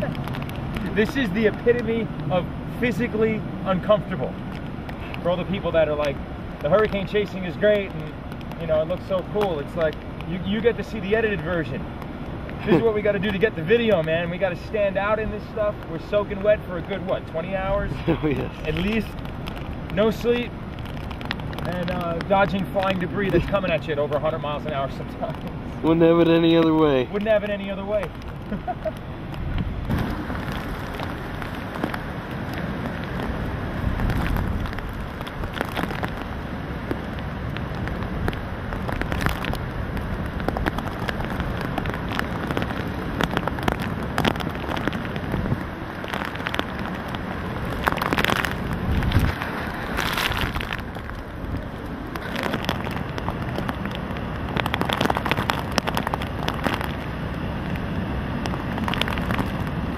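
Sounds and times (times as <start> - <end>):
driving rain: 0.0 - 59.9
hurricane wind: 0.0 - 59.9
wind buffeting microphone: 28.0 - 36.4, 37.0 - 57.0.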